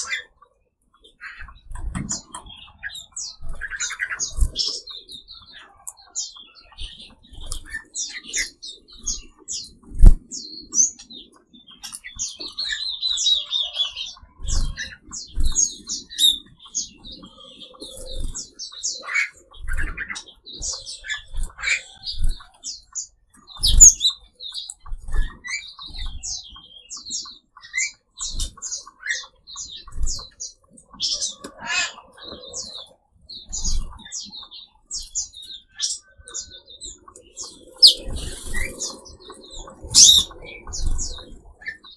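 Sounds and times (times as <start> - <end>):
songbirds chirping: 0.0 - 41.9
buzzy falling bird trill: 39.9 - 40.4.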